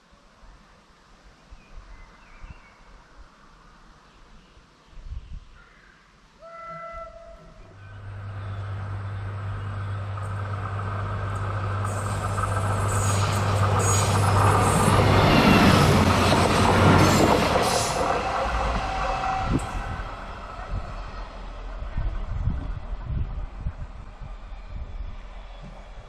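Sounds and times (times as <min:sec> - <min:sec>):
diesel railcar engine drone: 0:07.1 - 0:26.0
wheel and rail noise: 0:07.5 - 0:26.0
high wheel squeals: 0:11.8 - 0:15.8.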